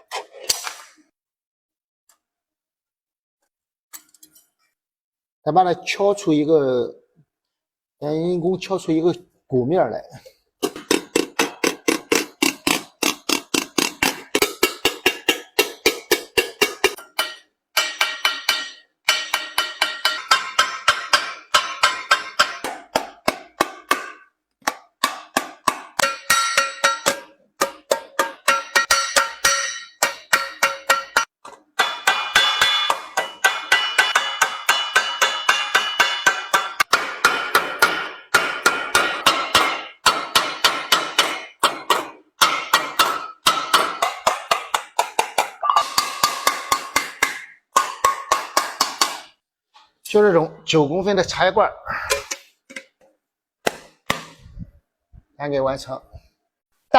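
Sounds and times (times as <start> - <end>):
hammer striking sheet metal: 10.6 - 49.4, 53.6 - 54.6.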